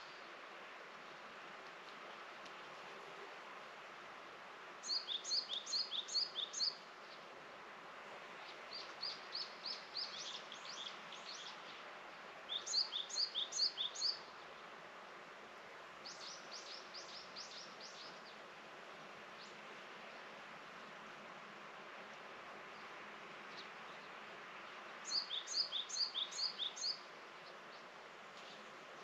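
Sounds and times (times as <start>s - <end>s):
faint hiss: 0.0s - 29.0s
songbird singing: 4.8s - 7.3s, 8.4s - 11.8s, 12.5s - 14.6s, 16.0s - 18.4s, 22.7s - 29.0s.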